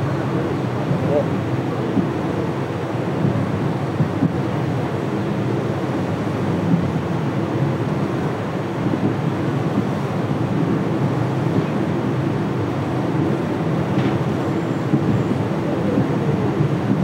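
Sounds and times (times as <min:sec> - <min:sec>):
train wheels rumbling on rails: 0:07.8 - 0:17.0.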